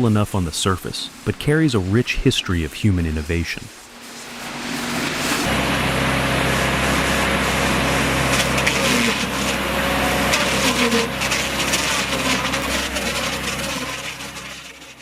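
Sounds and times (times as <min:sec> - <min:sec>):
wood rubbing and scraping: 0:03.8 - 0:05.5, 0:10.2 - 0:15.0
motor hum: 0:03.8 - 0:15.0.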